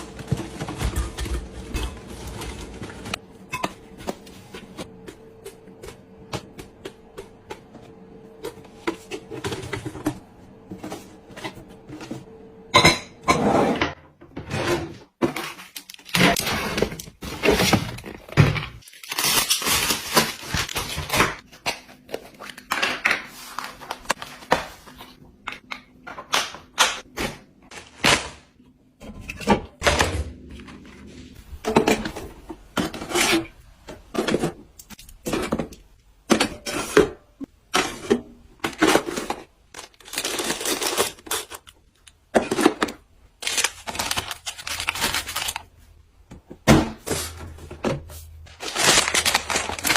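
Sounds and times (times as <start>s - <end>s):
packaging rustling: 15.4s - 25.2s, 38.7s - 45.8s, 48.4s - 49.9s.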